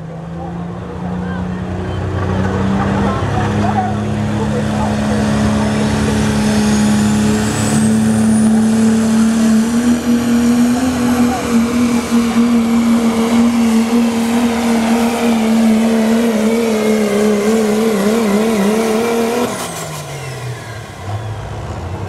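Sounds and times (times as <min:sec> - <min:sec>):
diesel truck engine at high revs: 0:00.0 - 0:22.0.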